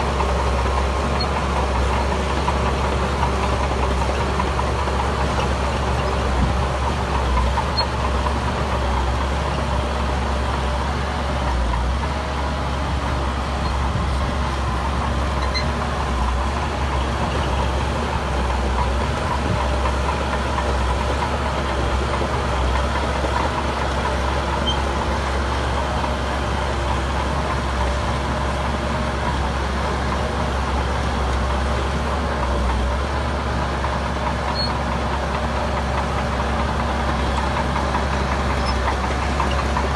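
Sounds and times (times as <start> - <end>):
diesel engine rumbling: 0.0 - 39.9.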